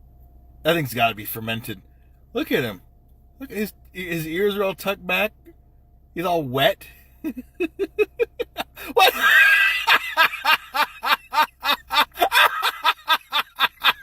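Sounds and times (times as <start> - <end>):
rapid laughter: 7.3 - 14.0.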